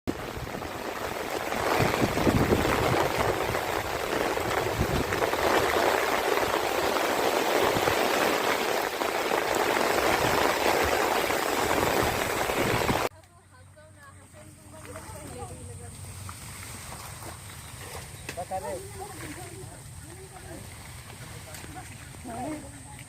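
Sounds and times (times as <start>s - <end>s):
steady rain falling: 0.1s - 13.1s.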